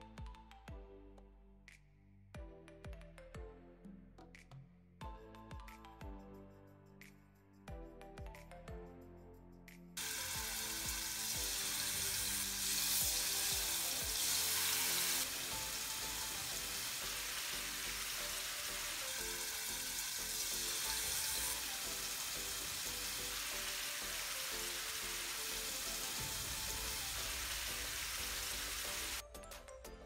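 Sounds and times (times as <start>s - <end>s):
background music: 0.0s - 30.0s
chicken sizzling in hot oil: 10.0s - 29.2s.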